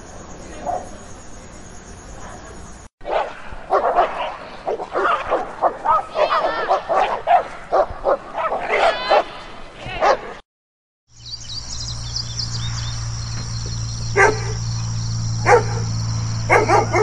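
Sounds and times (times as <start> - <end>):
dog barking: 3.0 - 9.3, 10.0 - 10.4, 14.2 - 14.6, 15.4 - 15.9, 16.5 - 17.0
dog yelping: 4.7 - 9.2, 14.2 - 14.6, 15.4 - 15.8, 16.5 - 17.0.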